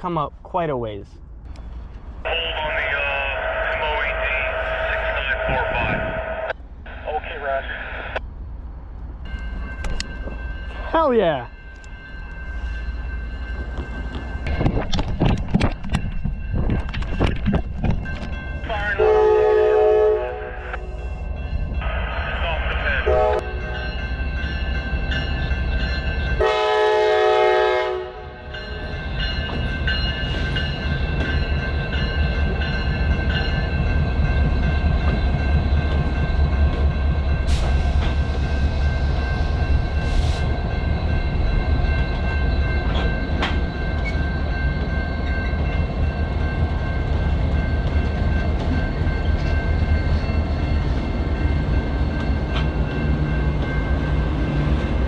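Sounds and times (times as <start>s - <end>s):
diesel locomotive engines rumbling: 0.0s - 55.0s
locomotive horn blast: 19.0s - 21.1s, 23.0s - 23.8s, 26.4s - 28.4s.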